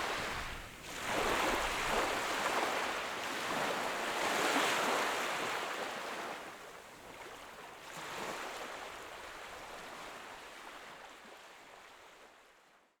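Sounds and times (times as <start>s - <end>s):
sea waves washing onto beach: 0.0s - 5.4s.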